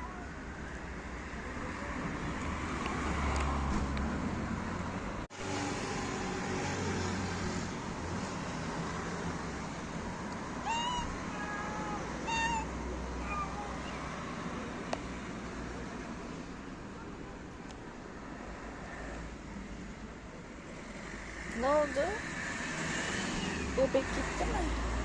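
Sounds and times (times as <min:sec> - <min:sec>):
cat meowing: 0:10.6 - 0:14.2.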